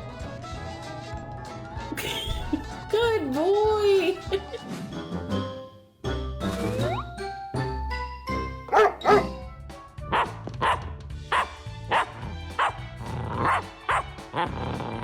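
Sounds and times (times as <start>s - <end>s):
background music: 0.0s - 15.0s
puppy barking: 8.7s - 9.4s, 10.1s - 12.8s, 13.4s - 14.5s.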